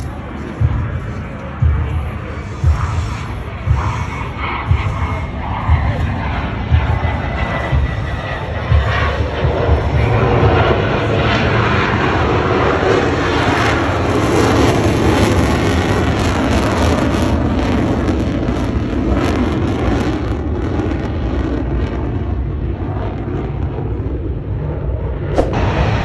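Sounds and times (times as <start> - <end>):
airplane flying past: 0.0 - 16.3, 24.1 - 26.0.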